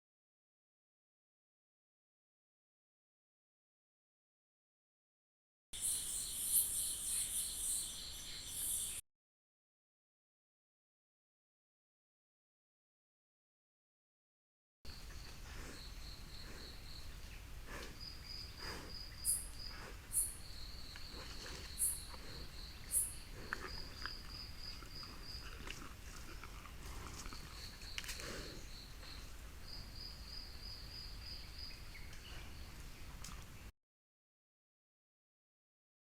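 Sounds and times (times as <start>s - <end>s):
insect chirping: 5.8s - 9.0s, 14.9s - 32.8s.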